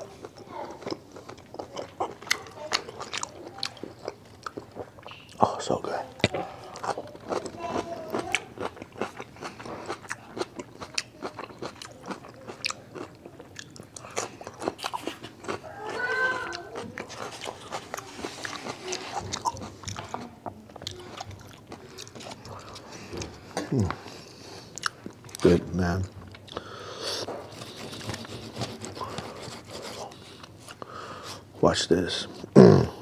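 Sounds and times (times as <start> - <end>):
wet chewing crunches: 0.0 - 5.5, 6.1 - 25.5.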